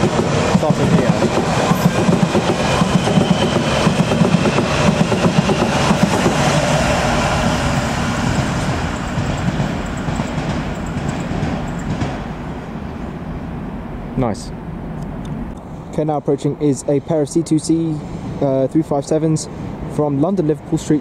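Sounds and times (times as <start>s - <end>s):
electric train running: 0.0s - 12.3s.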